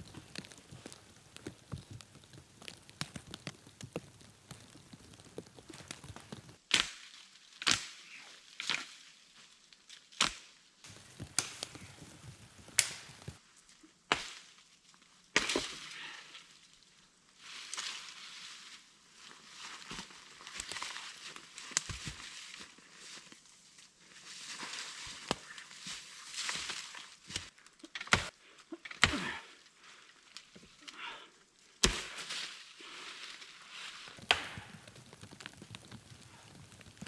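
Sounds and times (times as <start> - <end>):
crackling and rustling: 0.0 - 6.6, 10.9 - 13.4, 34.2 - 37.0
chopping strikes on wood: 34.2 - 34.8.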